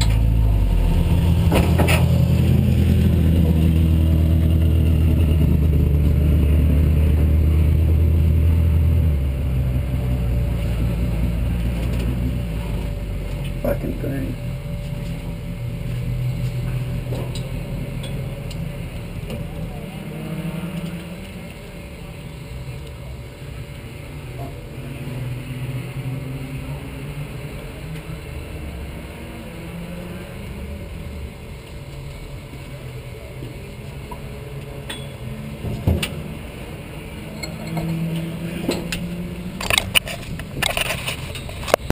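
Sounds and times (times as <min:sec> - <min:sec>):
race car engine idling: 0:00.0 - 0:24.9.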